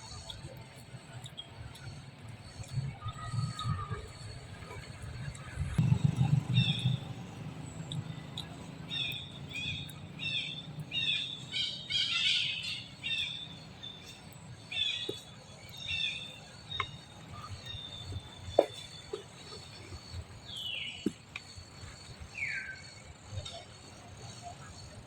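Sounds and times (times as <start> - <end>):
bird chirping: 1.2 - 25.0
low rumble: 3.1 - 8.4.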